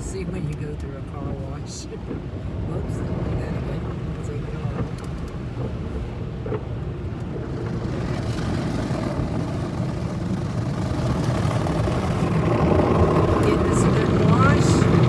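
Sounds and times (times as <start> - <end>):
car wash low rumble: 0.0 - 15.0
car wash rushing hiss: 7.1 - 15.0.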